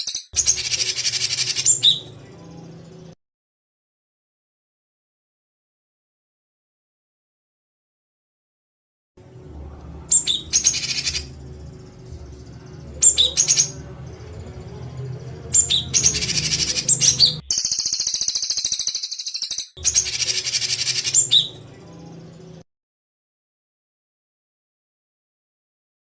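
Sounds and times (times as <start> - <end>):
songbird harsh rapid calls: 15.6 - 21.5.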